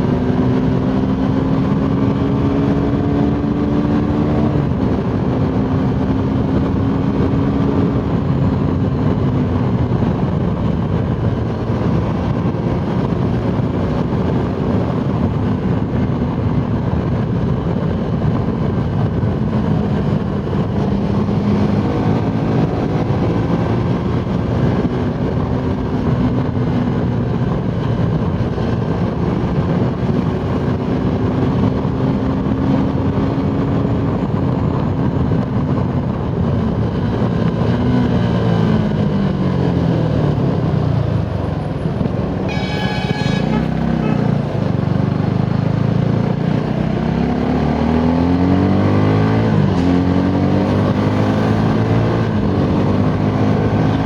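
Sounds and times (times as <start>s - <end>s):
motorcycle engine at high speed: 0.0s - 54.0s
wind rush: 0.0s - 54.0s
horn: 42.4s - 44.6s.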